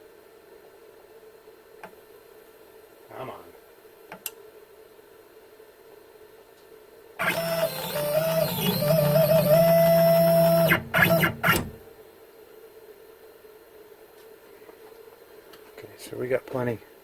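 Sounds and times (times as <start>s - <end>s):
stepper motors whining: 7.2s - 11.8s.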